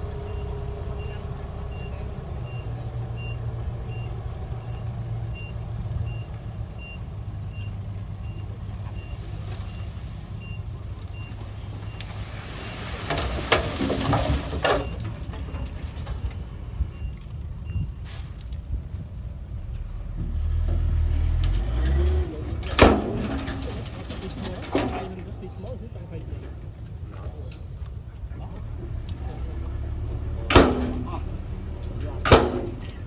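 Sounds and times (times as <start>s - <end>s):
diesel machinery running: 0.0s - 33.0s
rough clattering and hissing: 9.0s - 15.2s.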